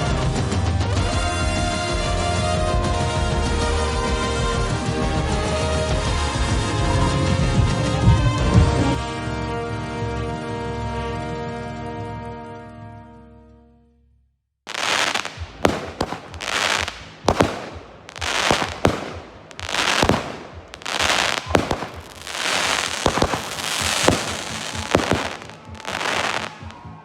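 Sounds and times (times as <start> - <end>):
fireworks bangs and crackles: 14.7 - 27.0.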